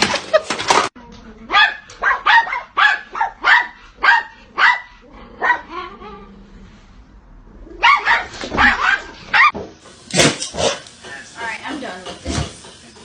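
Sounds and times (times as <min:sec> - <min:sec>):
dog barking: 0:01.5 - 0:05.8, 0:07.8 - 0:09.6.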